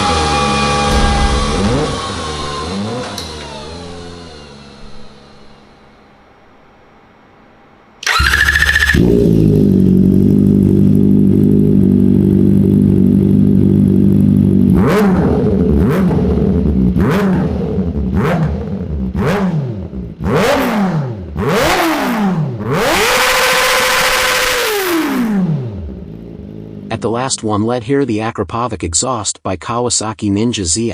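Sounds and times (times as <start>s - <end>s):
engine revving: 0.0s - 5.6s, 8.0s - 27.0s
electric starter cranking: 8.0s - 9.4s
motorcycle engine idling: 8.0s - 14.7s.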